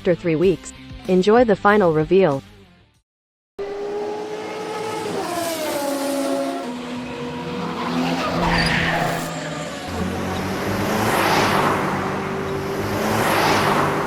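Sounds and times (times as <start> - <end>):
car engines revving: 3.6 - 14.0
tyres skidding: 3.6 - 14.0.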